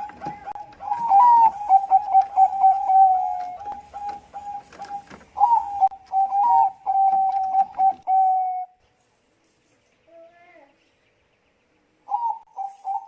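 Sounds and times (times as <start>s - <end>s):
dove cooing: 0.0s - 8.8s, 12.1s - 13.0s.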